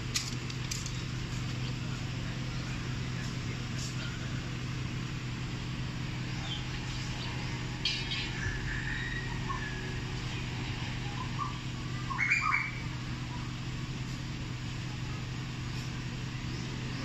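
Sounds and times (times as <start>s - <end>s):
steady low hum: 0.0s - 17.0s
birds chirping: 0.8s - 13.8s.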